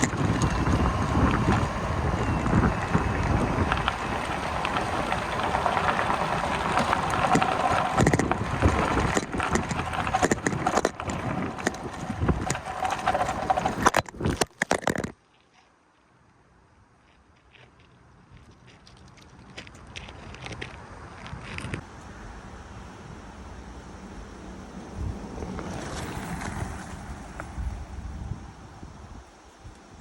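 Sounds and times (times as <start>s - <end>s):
wind buffeting microphone: 0.0s - 14.5s, 24.7s - 30.0s.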